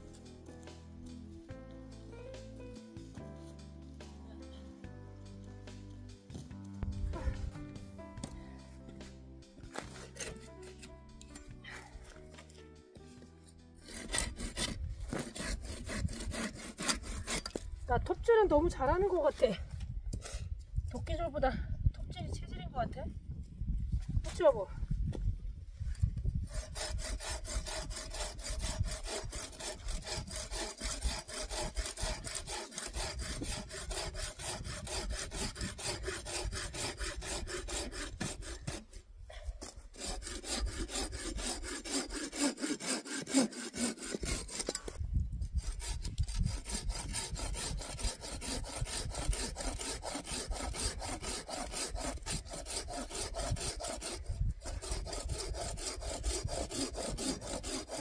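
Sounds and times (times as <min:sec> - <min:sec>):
hand saw cutting log: 0:09.7 - 0:12.6, 0:13.8 - 0:17.7, 0:26.4 - 0:58.0.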